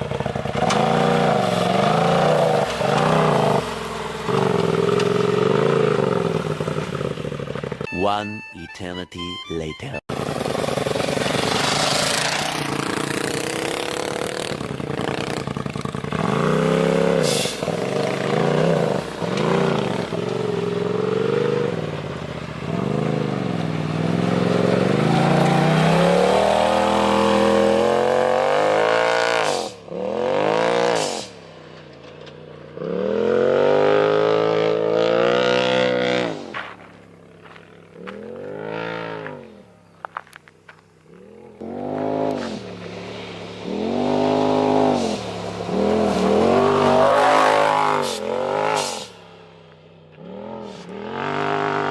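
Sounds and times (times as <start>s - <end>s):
off-road vehicle engine revving: 0.0s - 7.9s, 10.1s - 49.3s, 50.1s - 51.9s
sharp exhaust bursts: 10.1s - 21.2s.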